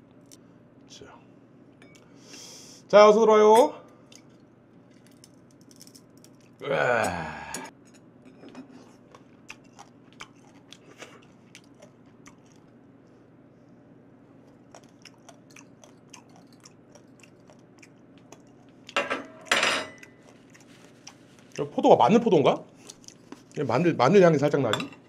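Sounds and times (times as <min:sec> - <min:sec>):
chewing and crunching: 0:08.8 - 0:12.9, 0:14.4 - 0:19.0, 0:20.0 - 0:21.8, 0:22.6 - 0:23.6.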